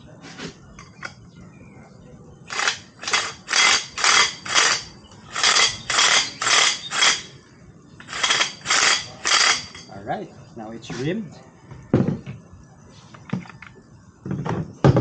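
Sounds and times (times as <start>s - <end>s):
reamer scraping metal pipe: 2.5s - 7.4s, 8.0s - 9.9s.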